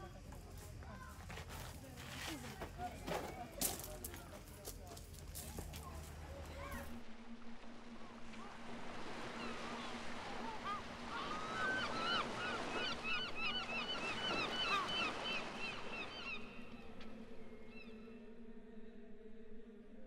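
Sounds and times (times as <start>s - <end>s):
birds chirping: 9.2s - 18.1s.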